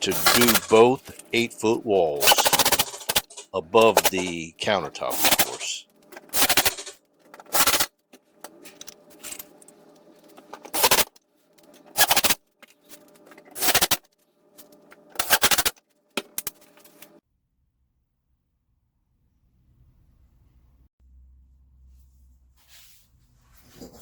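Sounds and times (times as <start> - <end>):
power tool driving fasteners: 2.2 - 4.3, 6.2 - 7.9, 12.0 - 12.4.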